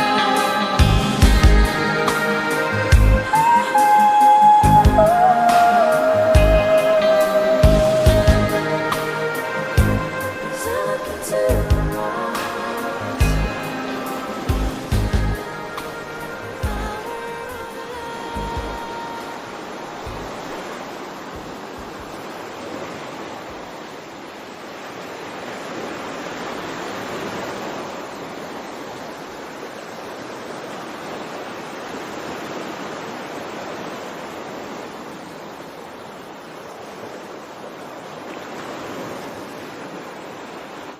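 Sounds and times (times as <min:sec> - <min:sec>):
sea waves washing onto shore: 0:00.0 - 0:40.9.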